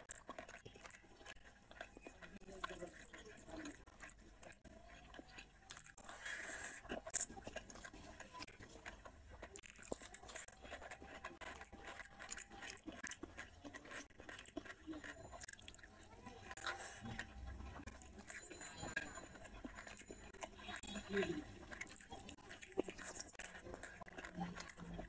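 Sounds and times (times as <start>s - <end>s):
biting into food: 0.0s - 25.0s
wet chewing and smacking: 0.0s - 25.0s.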